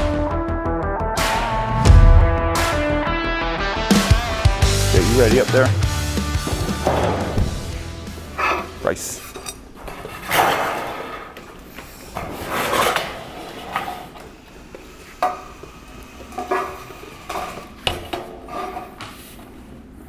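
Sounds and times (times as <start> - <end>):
sheet metal scraping and clanking: 6.5 - 11.4.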